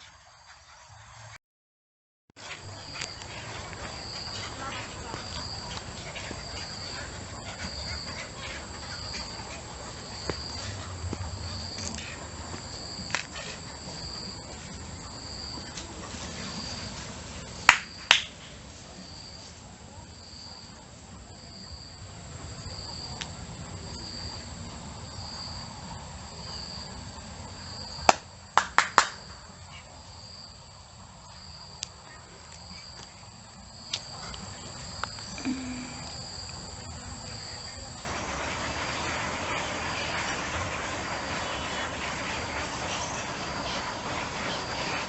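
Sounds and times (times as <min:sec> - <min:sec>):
insect chirping: 0:29.2 - 0:38.1.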